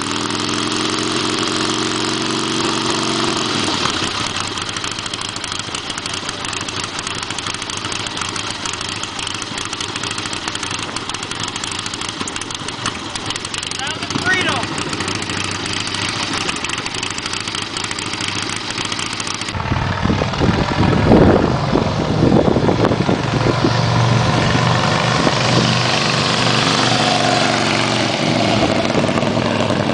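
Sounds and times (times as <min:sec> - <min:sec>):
engine running: 0:00.0 - 0:29.9.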